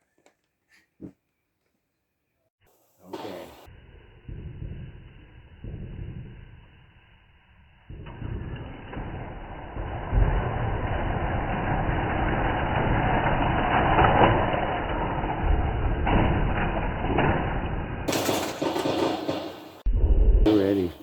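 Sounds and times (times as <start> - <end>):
wheels rattling on plastic track: 18.1 - 19.6.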